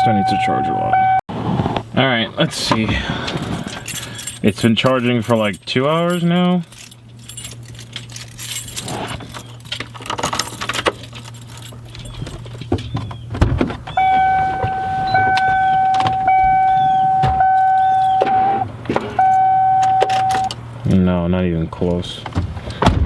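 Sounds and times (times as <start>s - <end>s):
dashboard warning tone: 0.0s - 1.2s, 13.9s - 20.6s
keys jangling: 3.2s - 12.7s, 15.3s - 18.2s.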